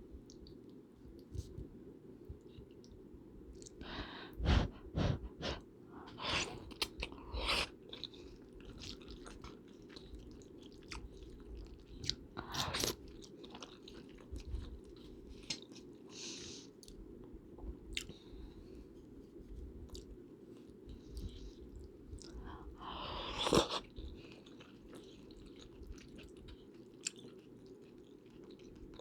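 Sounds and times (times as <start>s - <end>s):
crunchy bites and chewing: 12.0s - 14.2s.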